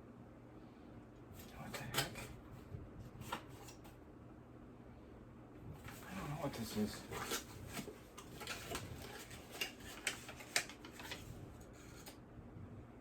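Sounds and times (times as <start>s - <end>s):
packaging crinkling and clicking: 7.1s - 12.2s.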